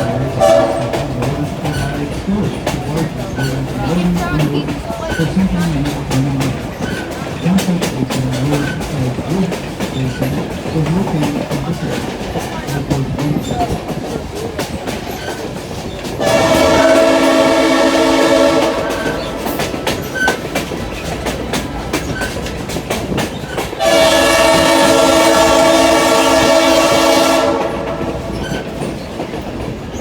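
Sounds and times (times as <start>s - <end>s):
locomotive horn blasts: 0.0s - 1.8s, 16.2s - 19.8s, 23.8s - 28.5s
train wheels clacking on rails: 0.0s - 30.0s.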